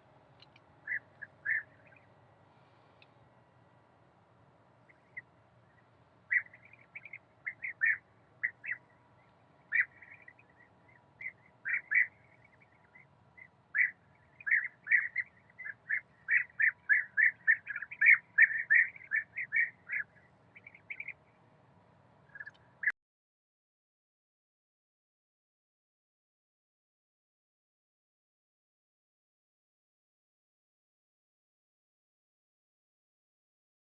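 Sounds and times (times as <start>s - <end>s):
birds calling sharply: 0.4s - 3.1s, 4.9s - 21.2s, 22.3s - 22.9s.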